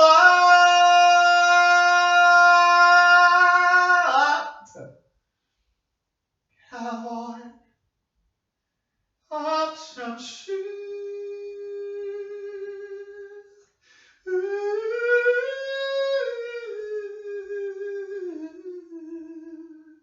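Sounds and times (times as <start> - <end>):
person singing unaccompanied: 0.0 - 4.7, 6.7 - 7.5, 9.3 - 13.5, 14.3 - 20.0.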